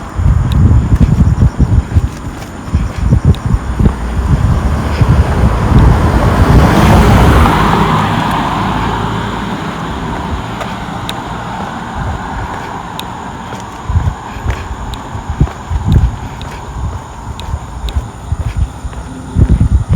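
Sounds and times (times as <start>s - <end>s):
car passing close by: 4.0s - 14.4s.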